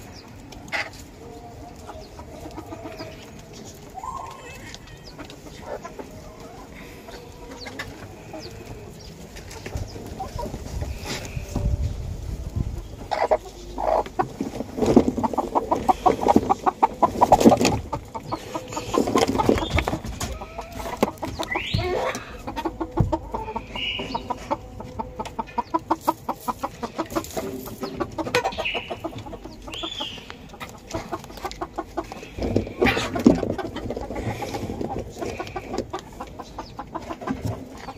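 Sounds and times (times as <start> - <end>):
chickens clucking: 0.0 - 37.9.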